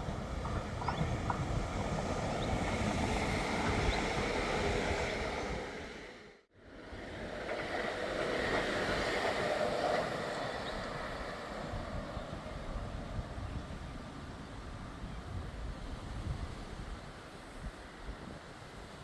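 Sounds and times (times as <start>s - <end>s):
train rushing past: 0.0s - 13.8s.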